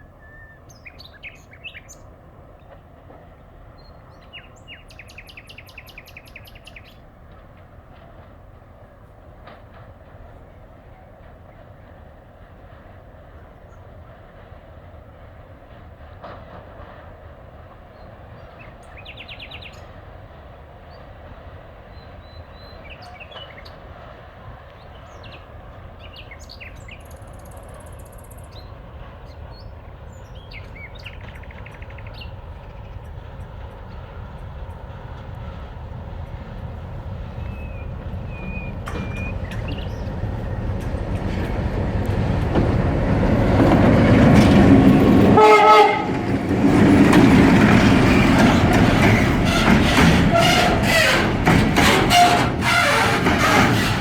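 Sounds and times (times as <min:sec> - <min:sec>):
diesel locomotive rumble: 0:01.0 - 0:54.0
birds chirping and trilling: 0:37.2 - 0:44.6.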